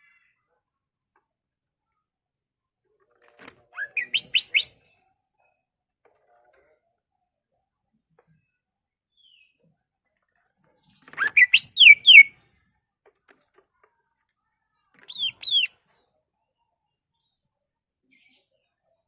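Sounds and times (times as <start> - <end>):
bird singing whistled notes: 3.8 - 4.7, 11.1 - 12.3, 15.1 - 15.7.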